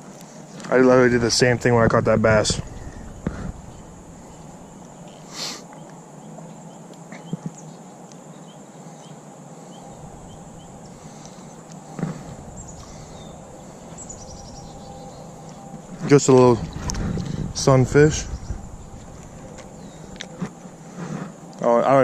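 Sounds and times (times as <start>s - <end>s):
background hiss: 0.0s - 22.0s
high insect drone: 0.0s - 22.0s.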